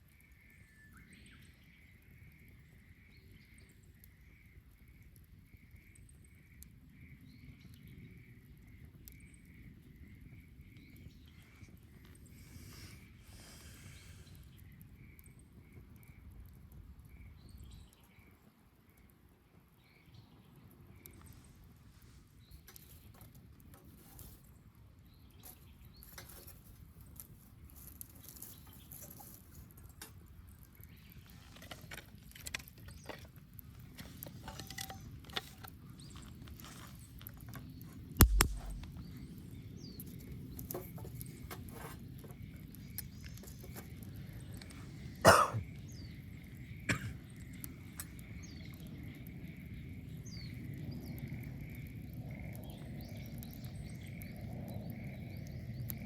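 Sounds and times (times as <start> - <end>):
bonfire crackling: 8.4 - 17.6, 31.8 - 56.0
loud pops of fire: 38.2 - 39.3.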